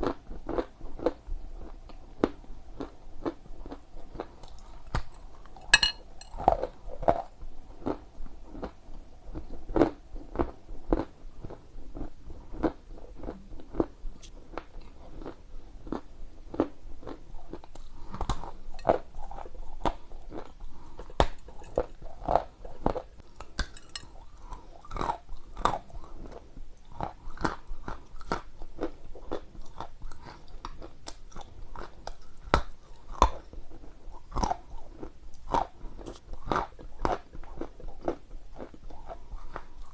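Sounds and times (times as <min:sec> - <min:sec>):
chewing crunchy clay: 0:09.4 - 0:39.9.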